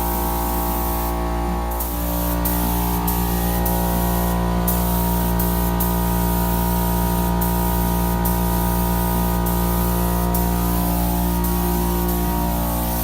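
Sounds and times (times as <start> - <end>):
spray gun hissing: 0.0 - 13.0
steady low hum: 0.0 - 13.0.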